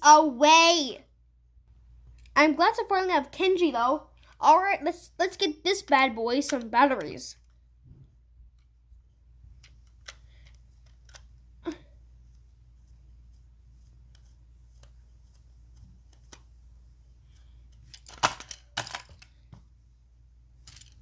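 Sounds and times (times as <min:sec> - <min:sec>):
small plastic clicks and handling: 0:02.1 - 0:02.4, 0:04.1 - 0:04.4, 0:05.8 - 0:07.6, 0:09.4 - 0:11.8, 0:14.0 - 0:16.6, 0:20.6 - 0:21.0
plastic clatter: 0:17.8 - 0:19.3.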